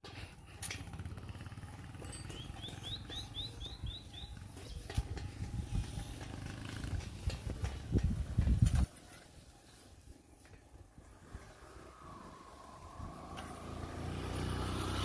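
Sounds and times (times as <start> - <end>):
bird chirping: 2.1 - 5.1.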